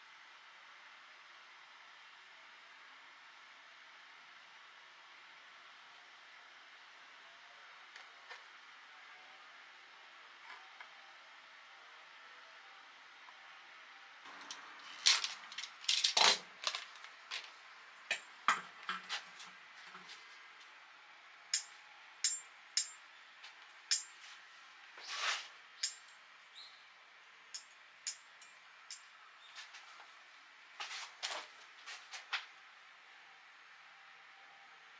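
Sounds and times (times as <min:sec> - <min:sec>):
metal fire tongs clinking: 0:14.4 - 0:17.5, 0:21.5 - 0:23.0, 0:23.9 - 0:24.3, 0:25.8 - 0:26.2, 0:27.6 - 0:29.1.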